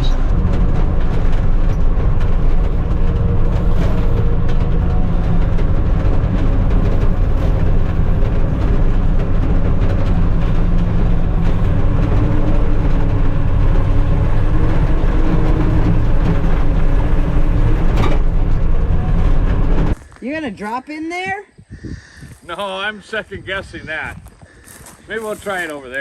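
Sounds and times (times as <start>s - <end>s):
snow vehicle engine: 0.0s - 20.1s
running gear rattling: 24.1s - 26.0s.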